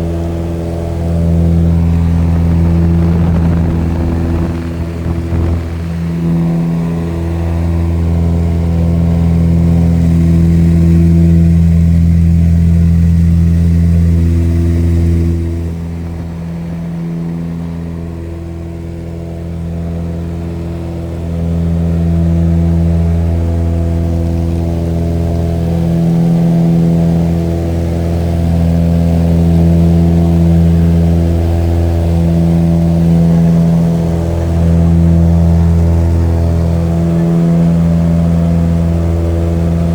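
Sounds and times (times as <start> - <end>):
engine drone: 0.0 - 39.9.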